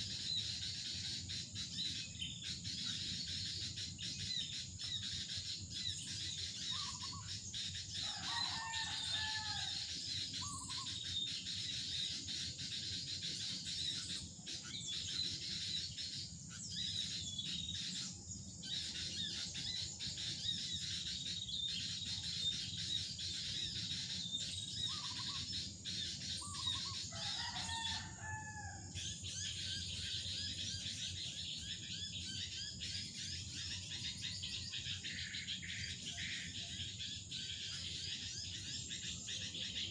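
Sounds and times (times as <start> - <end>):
insects chirping: 0.0 - 39.9
small birds calling: 0.0 - 39.9
fowl crowing: 8.0 - 9.8, 27.1 - 28.8.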